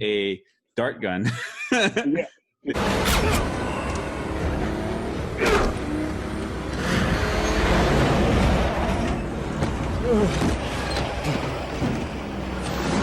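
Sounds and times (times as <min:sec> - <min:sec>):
cars and truck driving at speed: 0:02.7 - 0:13.0.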